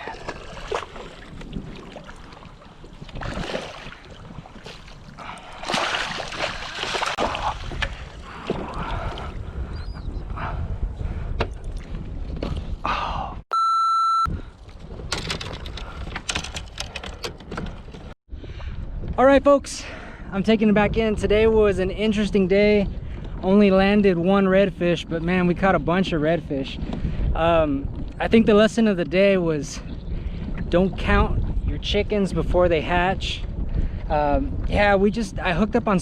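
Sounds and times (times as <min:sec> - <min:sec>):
water sloshing around kayak: 0:00.0 - 0:09.4
electronic beep: 0:13.5 - 0:14.3.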